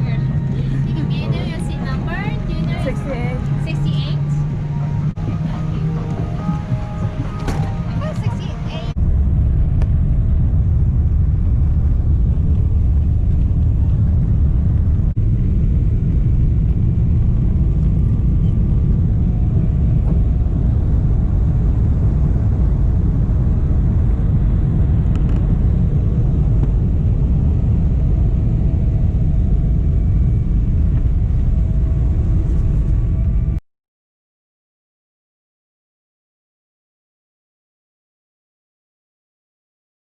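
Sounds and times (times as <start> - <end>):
faint whine: 0.0 - 33.6
jet cabin engine rumble: 0.0 - 33.6.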